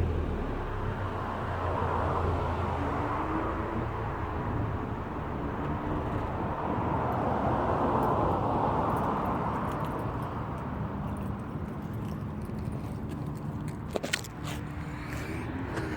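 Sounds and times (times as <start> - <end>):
car exhaust running: 0.0 - 8.4.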